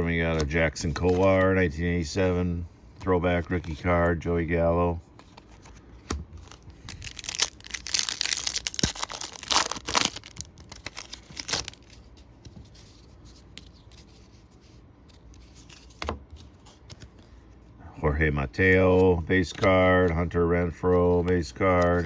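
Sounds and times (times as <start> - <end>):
wrapper tearing and crinkling: 6.4 - 12.0.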